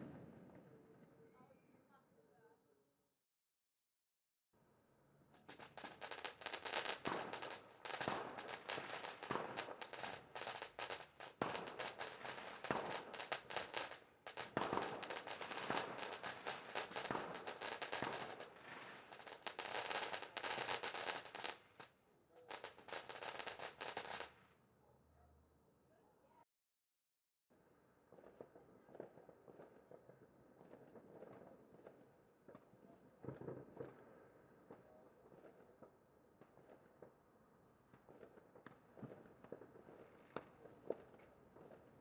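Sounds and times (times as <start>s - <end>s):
fireworks bangs and crackles: 5.4s - 24.4s, 28.1s - 37.2s, 37.9s - 42.0s.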